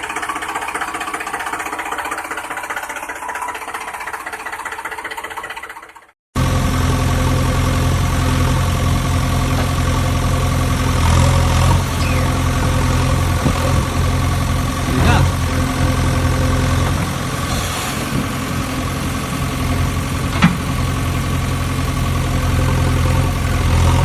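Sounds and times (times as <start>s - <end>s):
engine fast knocking rhythm: 0.0s - 6.5s, 8.5s - 17.4s
deep engine idle: 0.0s - 24.0s.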